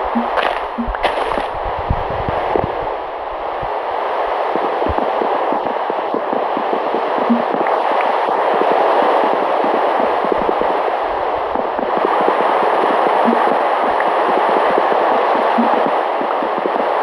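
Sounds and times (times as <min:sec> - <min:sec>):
heavy rain falling: 0:03.6 - 0:17.0.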